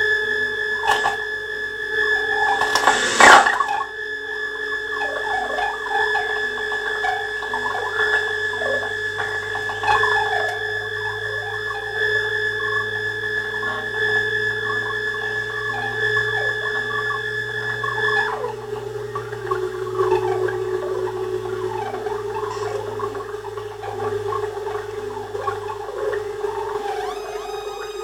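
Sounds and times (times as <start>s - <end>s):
high synthesizer drone tones: 1.8s - 4.4s, 5.0s - 28.0s
warbling chirping synth bleeps: 2.2s - 3.9s, 15.8s - 28.0s
crackling burst of noise: 2.3s - 3.8s.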